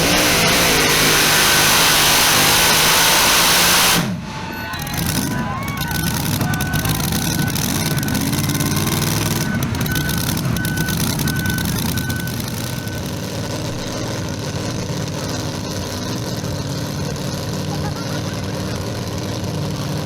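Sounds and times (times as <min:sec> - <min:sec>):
heavy vehicle engine running: 0:00.0 - 0:20.0
backup alarm beeping: 0:05.7 - 0:13.3.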